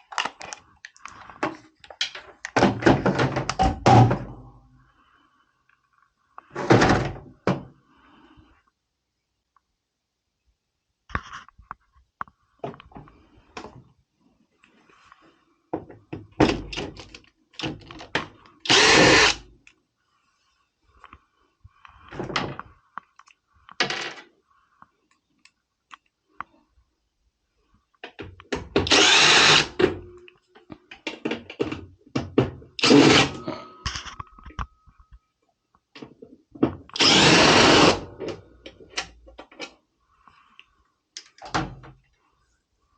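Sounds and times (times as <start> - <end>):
cordless screwdriver whirring: 18.7 - 19.4, 28.8 - 29.7, 32.8 - 33.4, 37.0 - 38.0.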